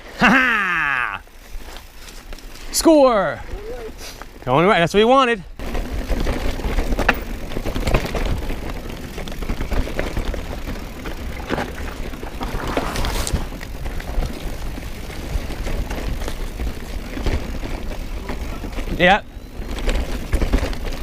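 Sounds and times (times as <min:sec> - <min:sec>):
bike tyres on dirt: 0:00.0 - 0:21.0
bike clattering over bumps: 0:05.5 - 0:21.0.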